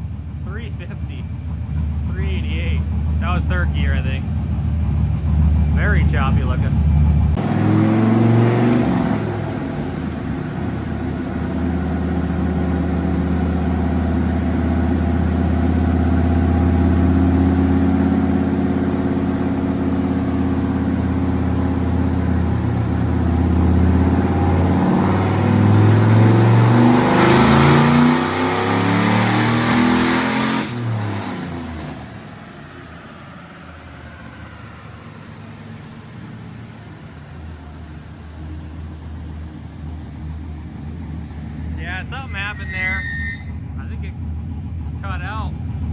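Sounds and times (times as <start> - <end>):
truck engine revving under load: 0.0 - 45.9.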